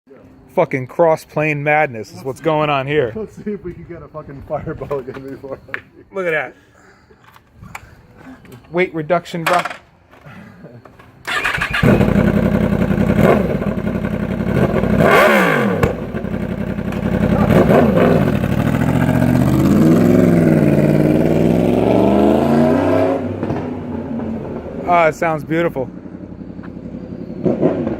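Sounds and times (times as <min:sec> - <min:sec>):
motorcycle engine revving: 0:11.3 - 0:27.9.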